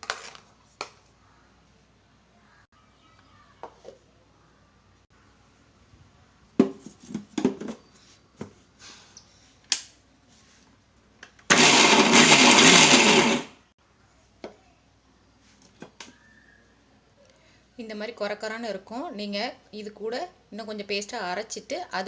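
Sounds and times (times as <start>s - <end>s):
mixer grinder grinding: 11.5s - 13.6s.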